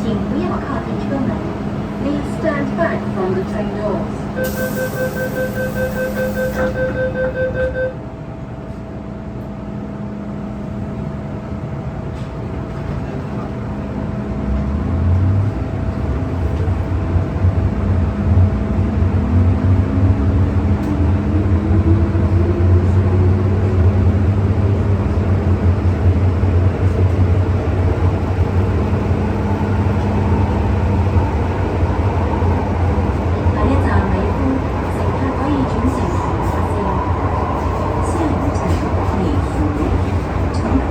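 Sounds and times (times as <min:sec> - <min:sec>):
train running rumble: 0:00.0 - 0:40.9
door-closing beep: 0:04.4 - 0:08.0.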